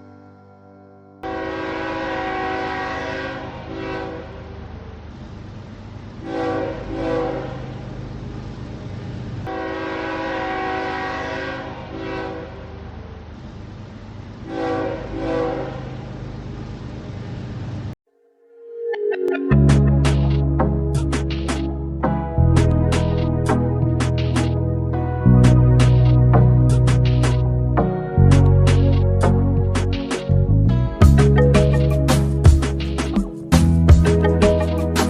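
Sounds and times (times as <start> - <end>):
train horn blasts: 1.2 - 4.7, 6.2 - 7.7, 9.5 - 12.8, 14.4 - 16.0
low train rumble: 1.2 - 18.0, 19.5 - 35.0.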